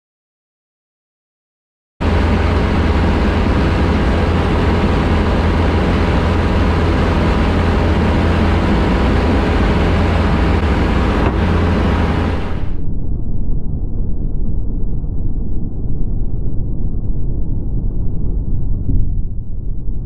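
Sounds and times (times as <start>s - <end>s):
light aircraft engine droning: 2.0s - 12.8s.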